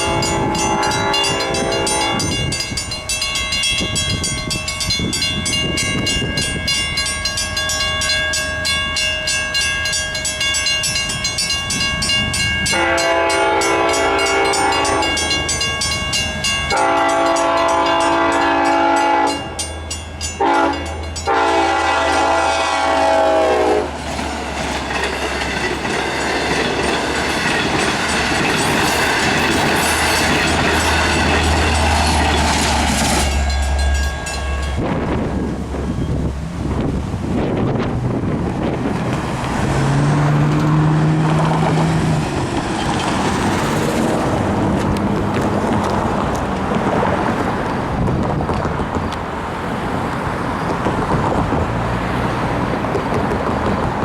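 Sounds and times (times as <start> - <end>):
train horn: 0.0 - 2.5, 12.6 - 15.6, 16.7 - 19.6, 20.4 - 24.0
crossing bell ringing: 0.0 - 38.3, 39.8 - 47.5
train rumbling past: 0.0 - 54.0.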